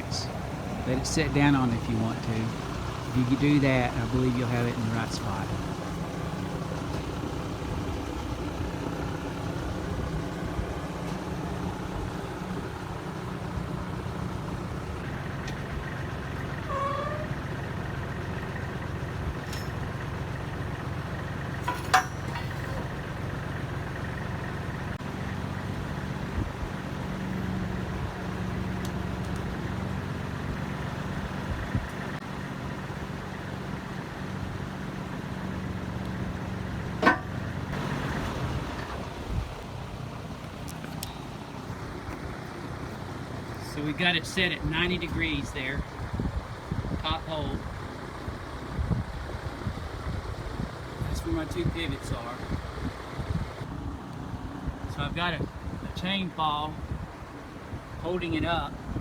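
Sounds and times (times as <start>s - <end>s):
tractor diesel engine running: 0.0s - 59.0s
short knocks: 37.0s - 37.4s.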